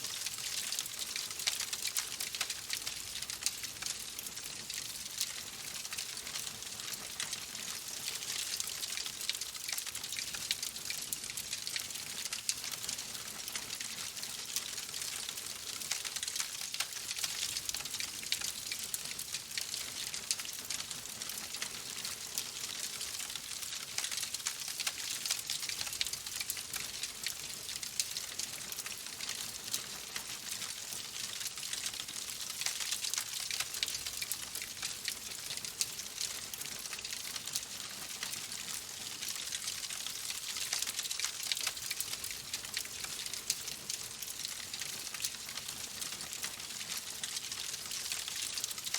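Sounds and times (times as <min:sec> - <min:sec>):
wood fire crackling: 0:00.1 - 0:06.3, 0:30.1 - 0:48.9.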